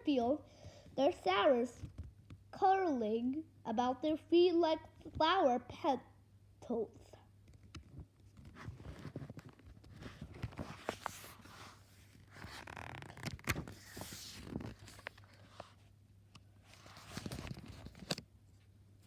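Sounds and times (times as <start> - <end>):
book pages turning: 8.3 - 15.8, 16.6 - 18.3.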